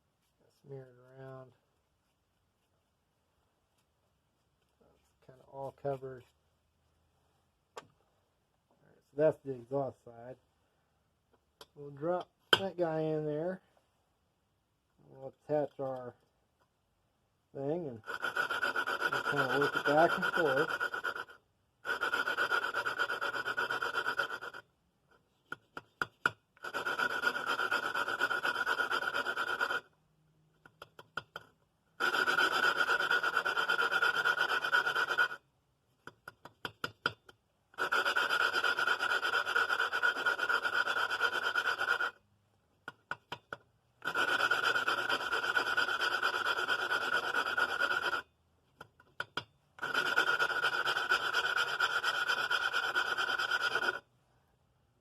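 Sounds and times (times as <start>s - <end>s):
valve lapping grinding rasp: 18.0s - 24.6s, 26.6s - 29.8s, 32.0s - 35.4s, 37.8s - 42.2s, 44.0s - 48.2s, 49.8s - 54.0s.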